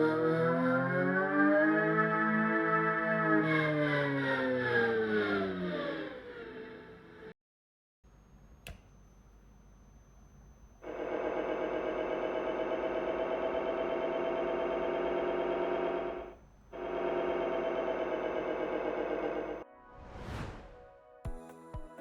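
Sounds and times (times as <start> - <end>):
electric vehicle warning hum: 8.2 - 19.6
click: 8.6 - 9.0.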